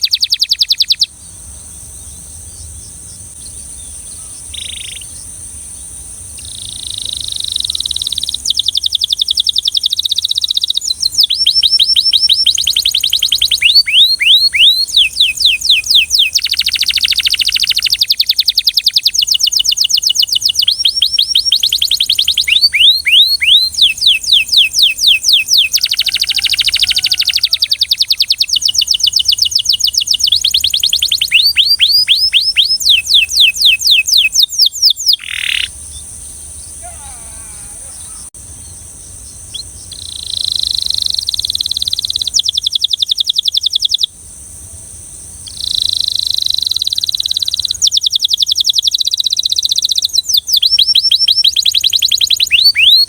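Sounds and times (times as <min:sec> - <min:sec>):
canary singing in trills: 0:00.0 - 0:01.1, 0:02.0 - 0:05.3, 0:06.4 - 0:44.1, 0:45.5 - 0:53.0.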